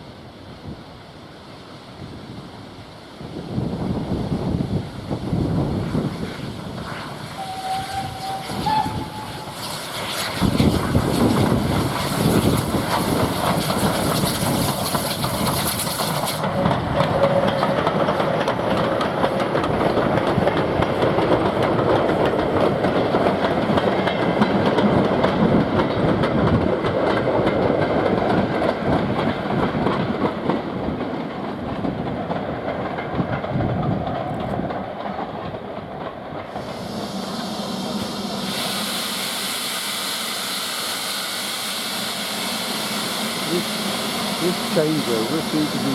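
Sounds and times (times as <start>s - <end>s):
train wheels clattering on rails: 6.2s - 39.9s.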